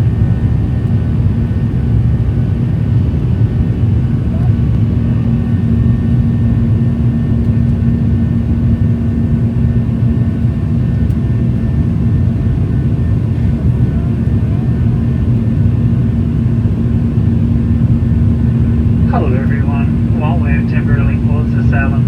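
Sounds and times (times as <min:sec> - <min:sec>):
constant low hum: 0:00.0 - 0:22.0
jet engine rumble: 0:00.0 - 0:22.0
cabin airflow: 0:18.6 - 0:22.0.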